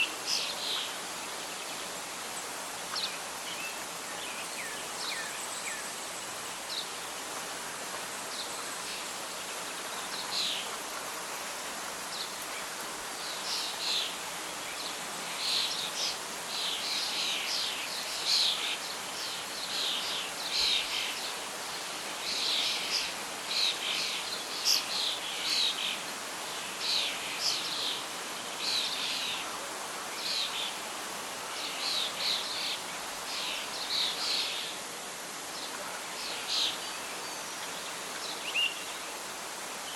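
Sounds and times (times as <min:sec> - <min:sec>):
wind hiss: 0:00.0 - 0:39.9
birds singing: 0:02.9 - 0:06.9, 0:35.6 - 0:39.1.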